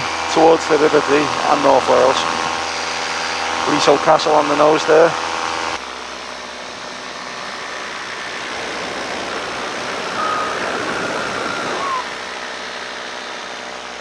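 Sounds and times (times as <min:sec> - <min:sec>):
paramotor engine and propeller: 0:00.0 - 0:14.0
wind rushing over microphone: 0:08.2 - 0:12.3.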